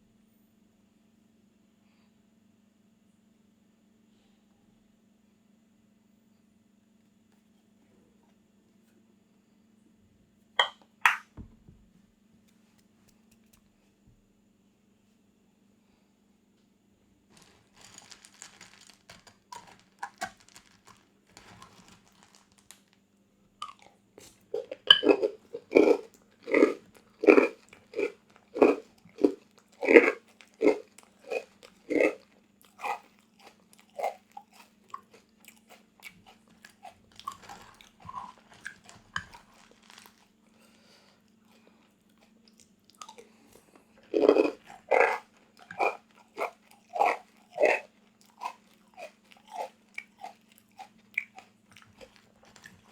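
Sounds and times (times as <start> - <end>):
faint steady hum: 0.0 - 52.9
quiet chewing: 12.4 - 13.9, 17.3 - 23.0, 23.6 - 52.9
crunchy food bites: 42.1 - 52.9.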